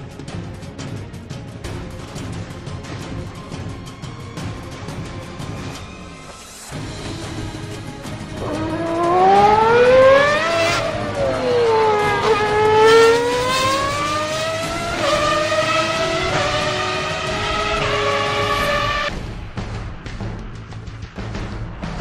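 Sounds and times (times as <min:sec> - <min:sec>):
vehicle engine revving: 0:07.2 - 0:19.1.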